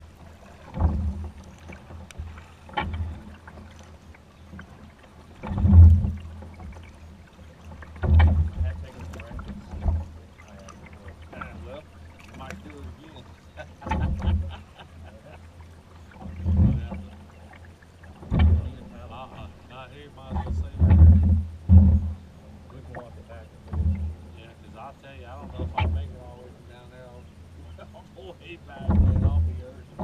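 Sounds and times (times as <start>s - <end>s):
kayak paddle splashing: 0.0s - 30.0s
steady low rumble: 0.0s - 30.0s
loud low thump: 20.3s - 22.2s.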